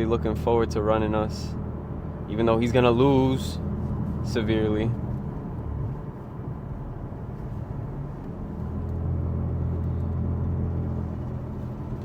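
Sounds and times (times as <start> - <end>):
car engine drone from cabin: 0.0 - 12.0.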